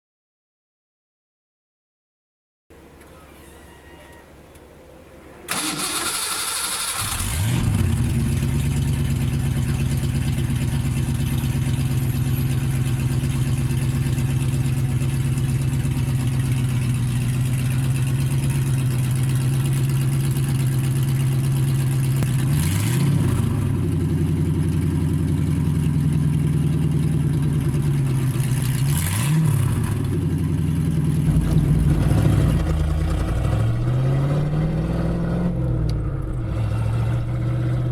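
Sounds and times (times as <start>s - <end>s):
starter motor cranking: 5.5s - 8.1s
car engine idling and revving: 5.5s - 37.9s.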